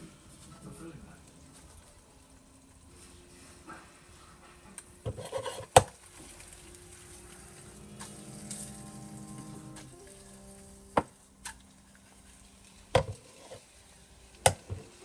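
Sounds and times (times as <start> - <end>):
faint steady tones: 6.5 - 15.0.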